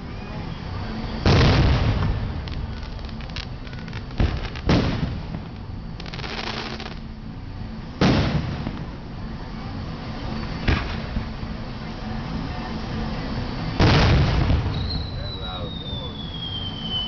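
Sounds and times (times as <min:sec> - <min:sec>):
fireworks crackling: 0:00.6 - 0:07.2, 0:08.0 - 0:09.2, 0:10.4 - 0:11.6, 0:13.7 - 0:17.0
fireworks bangs: 0:01.2 - 0:07.0, 0:08.0 - 0:09.0, 0:10.6 - 0:11.2, 0:13.8 - 0:17.0.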